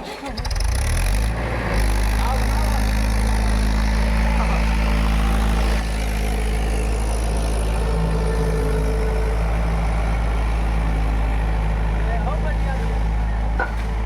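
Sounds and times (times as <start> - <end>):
tractor engine rumbling: 0.0 - 14.0.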